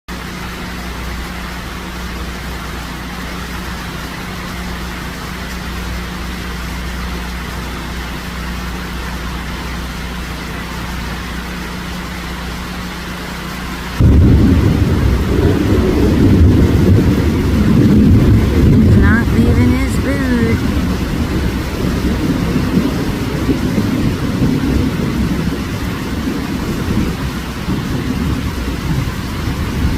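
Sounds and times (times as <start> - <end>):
rain falling: 0.1 - 29.9
loud low rumble: 14.0 - 29.9.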